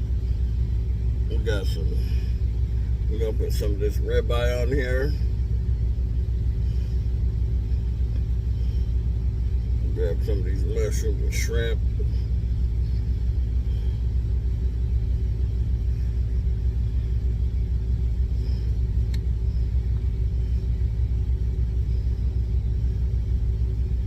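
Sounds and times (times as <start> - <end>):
truck engine idling: 0.0 - 24.0
faint click: 19.1 - 19.3.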